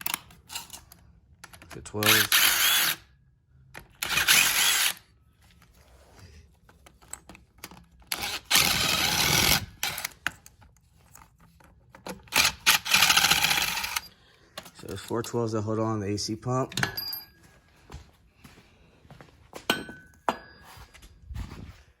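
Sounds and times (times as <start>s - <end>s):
power tool spinning out bolts: 1.9s - 3.0s, 3.9s - 5.0s, 8.1s - 10.2s, 12.2s - 14.1s.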